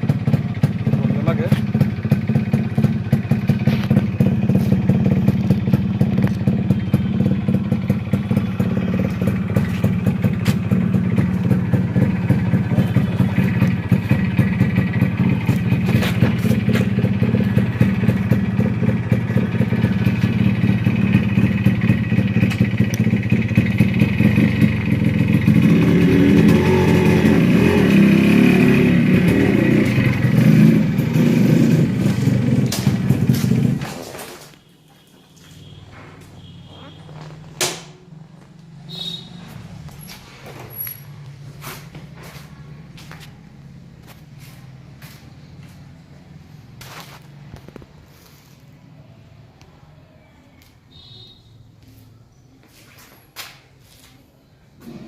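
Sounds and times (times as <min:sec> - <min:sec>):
two-stroke engine running: 0:00.0 - 0:33.9.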